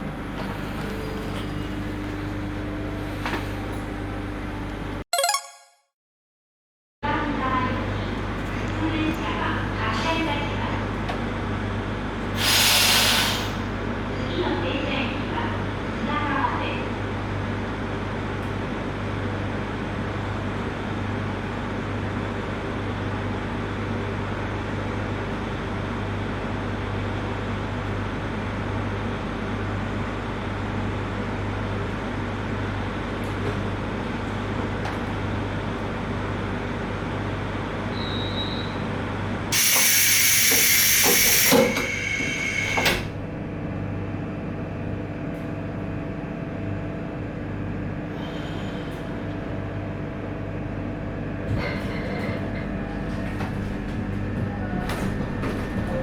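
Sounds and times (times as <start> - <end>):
electric train rumbling: 39.5 - 43.8, 51.4 - 56.0.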